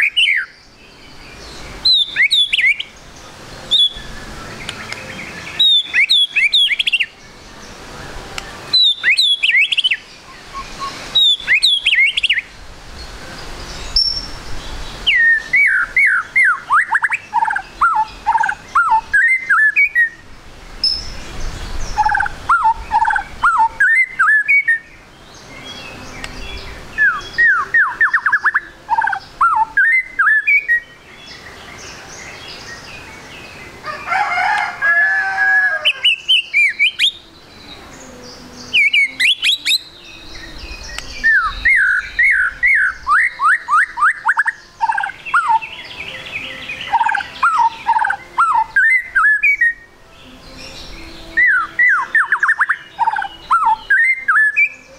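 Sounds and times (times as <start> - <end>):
bird singing whistled phrases: 0.0 - 0.6, 1.8 - 2.9, 3.7 - 7.2, 8.7 - 12.5, 15.0 - 20.2, 21.9 - 25.0, 25.6 - 31.4, 35.9 - 37.4, 38.6 - 54.9.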